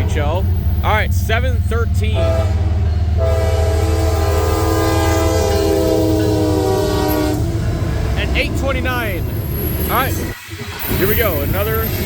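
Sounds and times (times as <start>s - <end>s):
passing train rumble: 0.0s - 12.0s
locomotive air horn: 2.0s - 7.8s.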